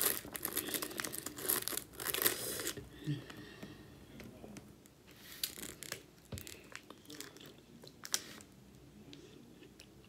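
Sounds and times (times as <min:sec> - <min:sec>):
biscuit crunches: 0:00.0 - 0:02.8.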